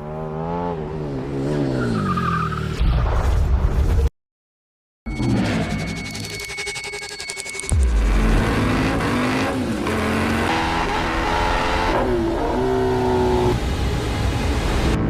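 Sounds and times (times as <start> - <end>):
motorbike engine revving: 7.3 - 13.7.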